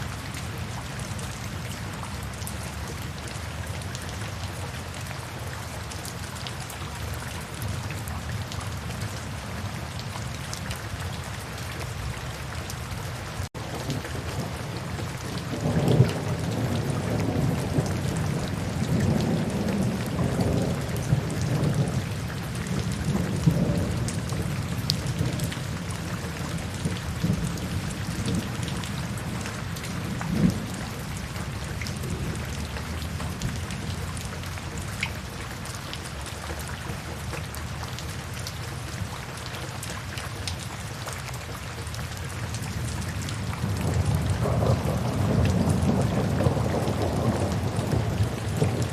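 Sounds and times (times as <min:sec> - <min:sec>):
steady rain: 0:00.0 - 0:48.9
rolling thunder: 0:13.6 - 0:34.0, 0:42.8 - 0:48.9.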